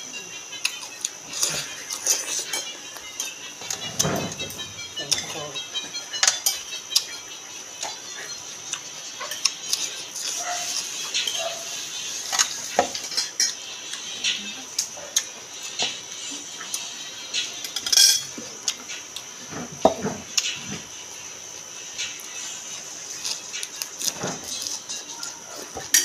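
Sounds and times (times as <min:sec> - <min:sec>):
crunching and chewing vegetables: 0:00.5 - 0:07.2, 0:07.8 - 0:17.7, 0:22.0 - 0:26.0
bowl and plate clinking: 0:02.0 - 0:07.1, 0:17.6 - 0:18.4.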